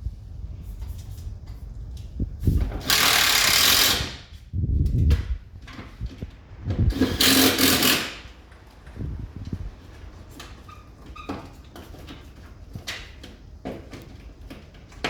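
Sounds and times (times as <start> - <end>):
power drill-driver running: 2.8 - 4.2, 6.9 - 8.2.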